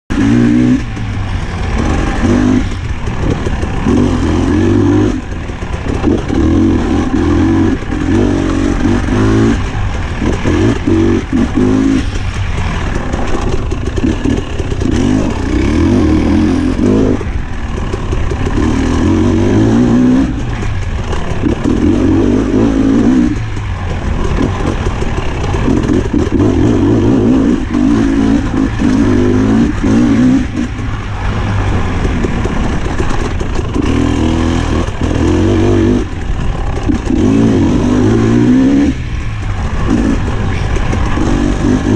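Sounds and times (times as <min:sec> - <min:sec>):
two-stroke engine revving: 0:00.1 - 0:41.9.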